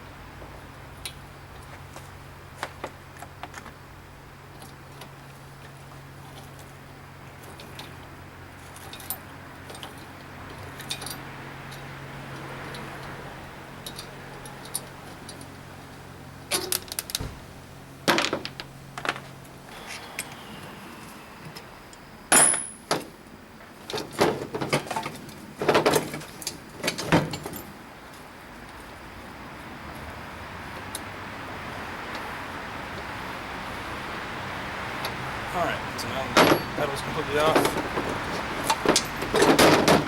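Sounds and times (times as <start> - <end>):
sharp metallic knocks: 36.2 - 38.1.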